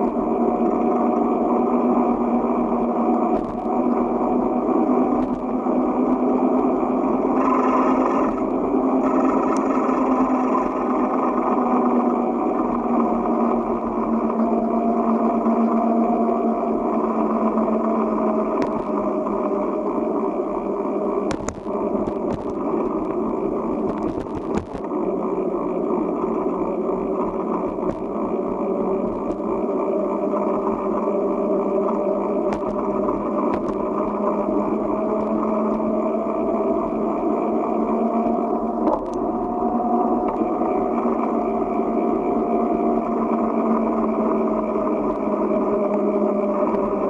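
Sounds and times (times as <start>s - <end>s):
bicycle rolling noise: 0.0s - 47.0s
bike knocking and rattling: 21.2s - 23.2s, 23.8s - 25.0s, 27.2s - 28.3s, 32.3s - 34.2s.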